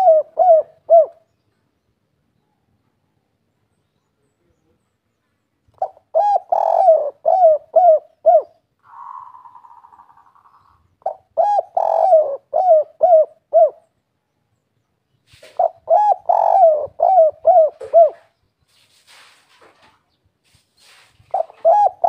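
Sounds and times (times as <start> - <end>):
dove cooing: 0.0 - 1.2, 5.8 - 13.9, 15.4 - 18.4, 21.3 - 22.0.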